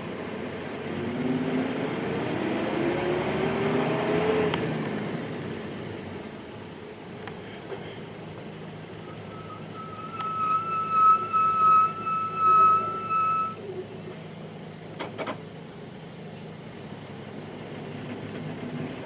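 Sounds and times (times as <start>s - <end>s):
bus diesel engine running: 0.0s - 19.0s
high-pitched tone: 9.0s - 13.6s.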